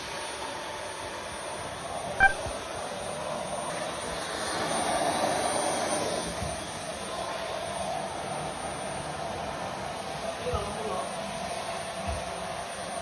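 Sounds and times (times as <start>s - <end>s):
short electronic beep: 2.2s - 2.5s
vacuum cleaner running: 2.9s - 13.0s.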